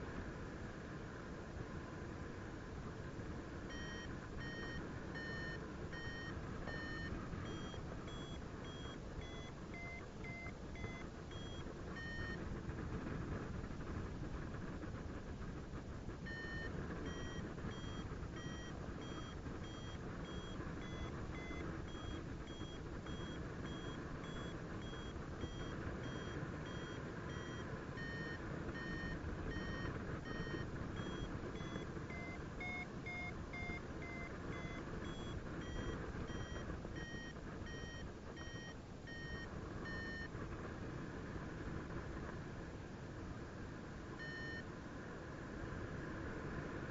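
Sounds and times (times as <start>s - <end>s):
variometer short beeps: 3.7s - 12.4s, 16.2s - 40.3s, 44.2s - 44.6s.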